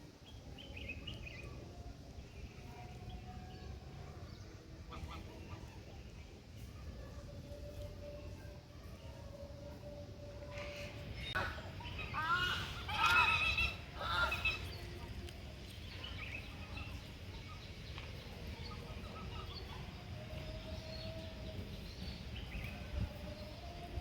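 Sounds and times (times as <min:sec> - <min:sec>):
wind rumble on microphone: 0:13.5 - 0:24.0.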